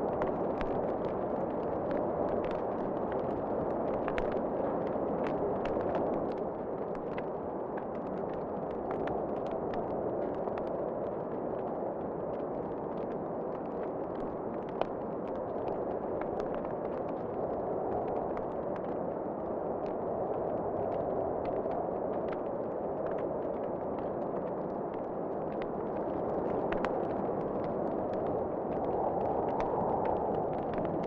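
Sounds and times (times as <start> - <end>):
wood fire crackling and popping: 0.0 - 31.0
rushing wind: 16.6 - 31.0.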